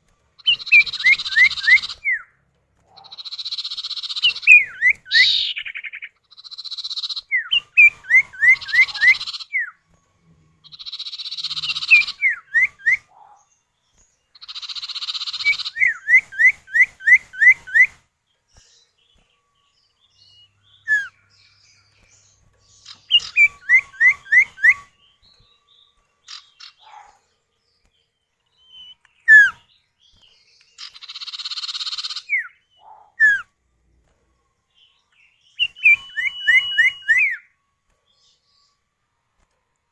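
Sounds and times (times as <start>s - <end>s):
quick rising bird whistles: 14.9s - 18.0s.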